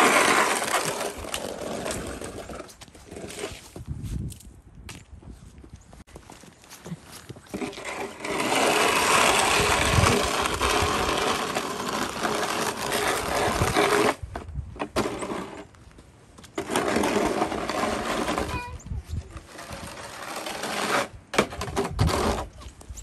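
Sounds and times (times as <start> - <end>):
shovel scraping snow: 0.0 - 3.8, 7.5 - 15.7, 16.6 - 18.8, 19.4 - 22.6.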